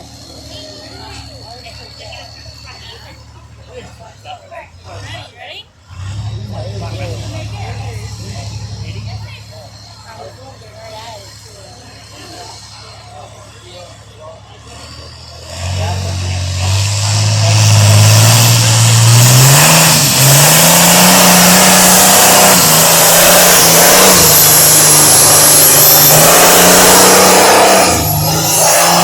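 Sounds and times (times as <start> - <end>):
vehicle engine revving hard: 4.8 - 29.0.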